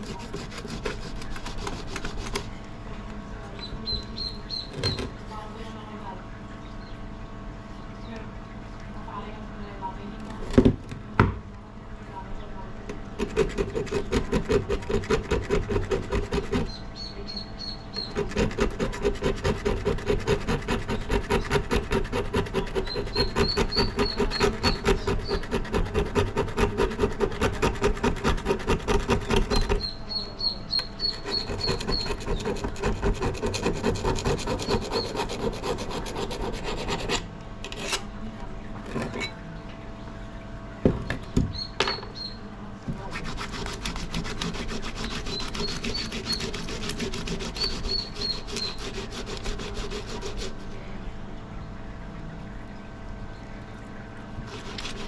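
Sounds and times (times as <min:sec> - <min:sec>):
rasping rub on axe head: 0:00.0 - 0:02.5, 0:13.2 - 0:16.8, 0:18.0 - 0:30.0, 0:31.0 - 0:38.0, 0:43.1 - 0:50.7, 0:54.5 - 0:55.0.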